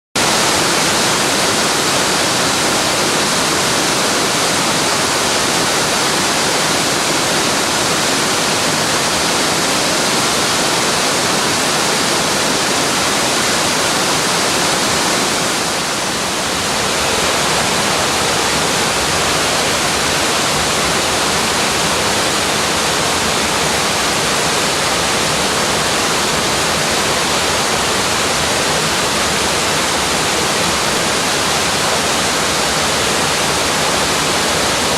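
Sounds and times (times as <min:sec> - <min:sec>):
waterfall rushing: 0:00.2 - 0:34.9.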